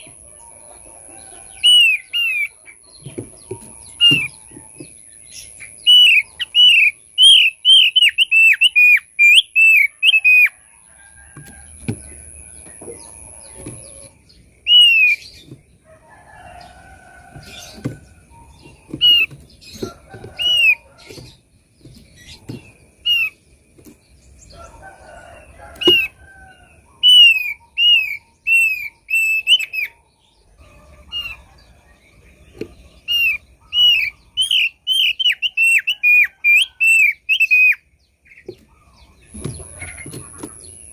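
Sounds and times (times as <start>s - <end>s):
soft bird chatter: 0.0s - 40.9s
bird whistled song: 1.5s - 2.6s, 5.4s - 10.6s, 13.9s - 15.5s, 27.0s - 30.0s, 33.0s - 37.9s.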